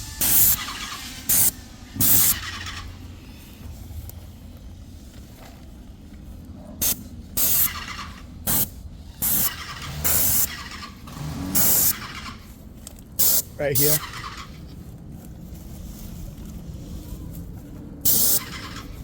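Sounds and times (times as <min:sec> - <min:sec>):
paint sprayer hissing: 0:00.0 - 0:03.5, 0:06.8 - 0:10.6, 0:11.6 - 0:12.1, 0:13.2 - 0:14.0, 0:18.0 - 0:18.9.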